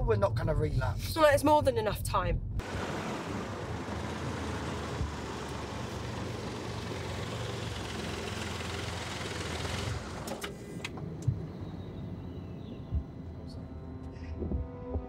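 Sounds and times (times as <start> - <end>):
car engine running: 2.6 - 13.6.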